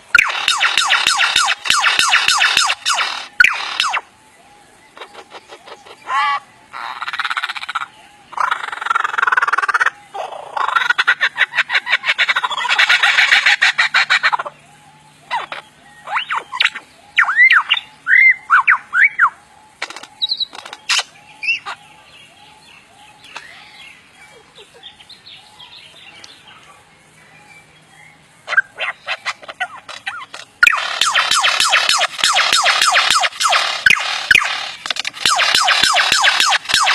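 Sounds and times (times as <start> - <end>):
birds harsh chattering: 0.0 - 36.9
whistled bird chirps: 15.3 - 19.4.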